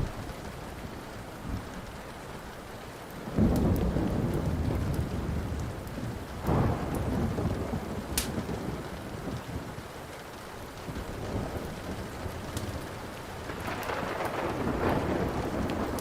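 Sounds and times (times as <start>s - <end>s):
steady rain: 0.0s - 16.0s
wood fire crackling: 0.0s - 16.0s
thunder rumbling: 3.2s - 10.0s, 10.6s - 16.0s.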